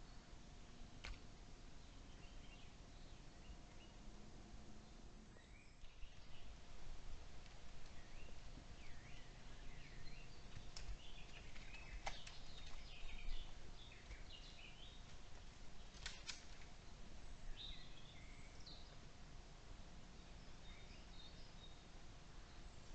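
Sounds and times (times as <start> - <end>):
birds chirping faintly: 0.0 - 22.9
low background rumble: 0.0 - 22.9
sharp clicks: 10.5 - 13.1, 15.1 - 16.7.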